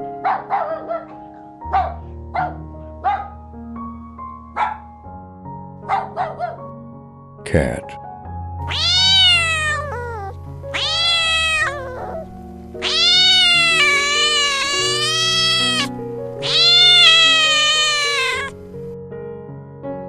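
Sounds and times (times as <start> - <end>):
background music: 0.0 - 20.0
cat meowing: 8.6 - 18.6.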